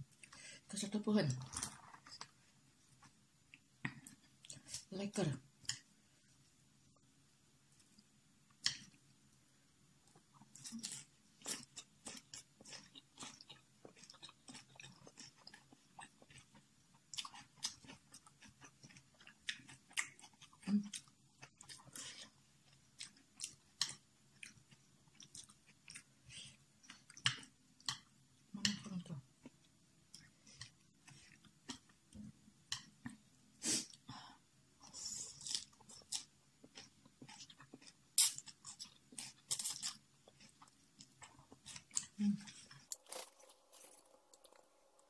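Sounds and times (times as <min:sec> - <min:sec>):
person chewing noodles: 0:10.1 - 0:28.1, 0:29.4 - 0:32.0, 0:34.8 - 0:45.0.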